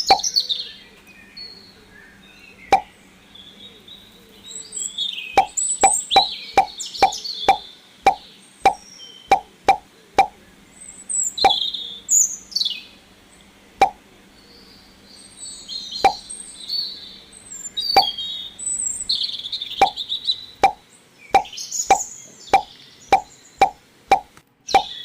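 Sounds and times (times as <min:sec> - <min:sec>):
small birds chirping: 0:00.0 - 0:25.0
water drops plopping: 0:05.4 - 0:10.4, 0:13.8 - 0:14.0, 0:16.0 - 0:16.2, 0:21.4 - 0:24.9.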